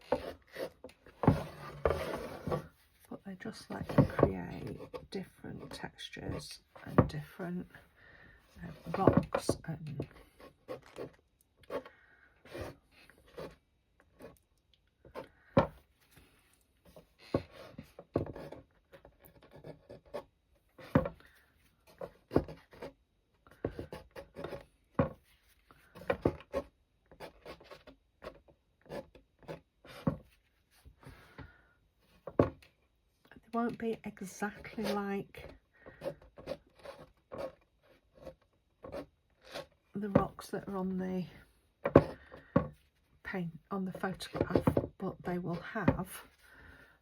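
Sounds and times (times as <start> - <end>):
palette knife scraping paper: 0.0 - 2.7, 34.6 - 39.8.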